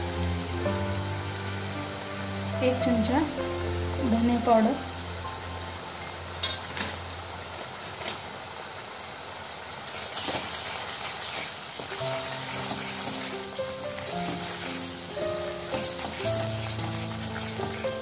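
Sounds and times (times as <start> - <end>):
faint background music: 0.0 - 6.6, 12.0 - 18.0
paste sizzling in oil: 0.0 - 18.0
wooden spatula stirring: 10.1 - 18.0.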